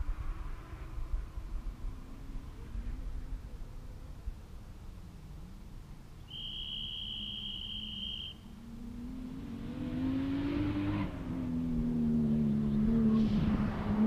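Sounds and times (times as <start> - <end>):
car engine revving: 8.6 - 14.0.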